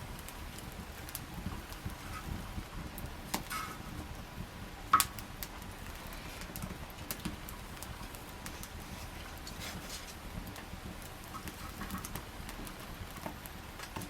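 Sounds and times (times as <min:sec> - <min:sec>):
wood fire crackling: 0:00.0 - 0:14.0
sharp pops and snaps: 0:04.9 - 0:08.8.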